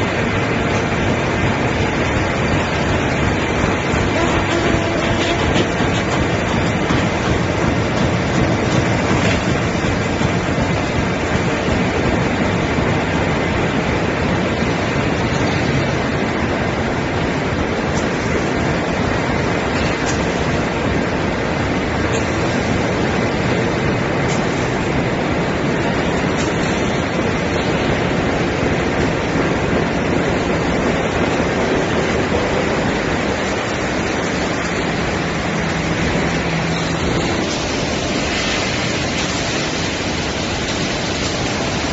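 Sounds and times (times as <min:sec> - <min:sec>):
machinery running: 0:00.0 - 0:41.9.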